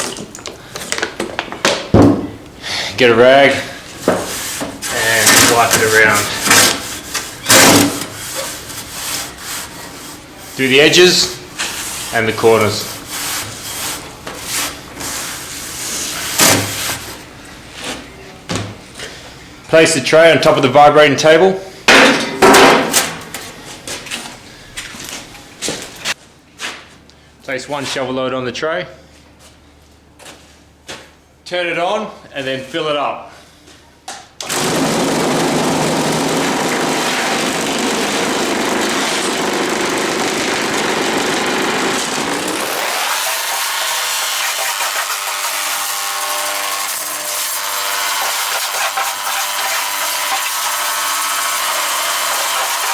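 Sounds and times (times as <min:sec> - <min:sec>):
rag rubbing inside a pan: 0:04.1 - 0:07.5, 0:08.1 - 0:10.9, 0:11.6 - 0:17.1
concrete vibrating table running: 0:34.5 - 0:45.9.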